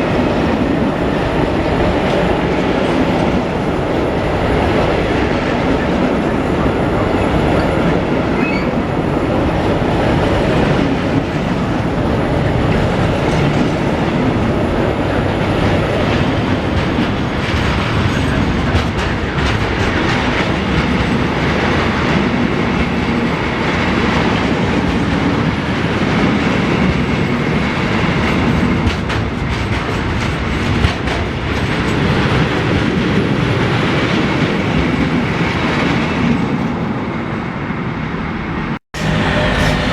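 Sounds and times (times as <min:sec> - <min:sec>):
freight train rumbling past: 0:00.0 - 0:39.9
wheels clicking over rail joints: 0:15.9 - 0:21.2, 0:28.1 - 0:33.2.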